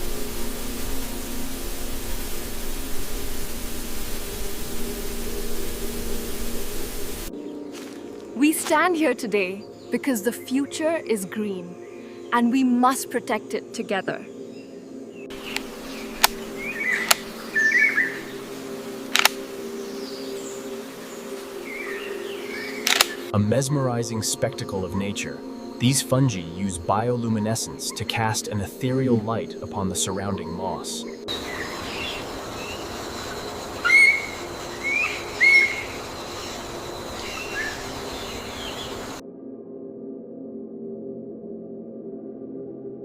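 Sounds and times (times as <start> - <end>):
bird chirping: 13.6 - 19.0, 24.9 - 39.2
bird whistling: 15.4 - 18.4, 33.8 - 39.2
sharp clicks: 15.5 - 16.4, 17.0 - 17.3, 19.1 - 19.4, 22.8 - 23.3.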